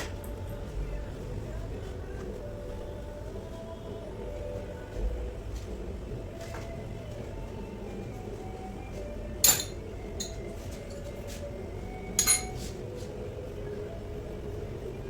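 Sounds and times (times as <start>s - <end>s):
metallic clinks of steel parts: 9.4s - 10.4s, 12.2s - 12.6s.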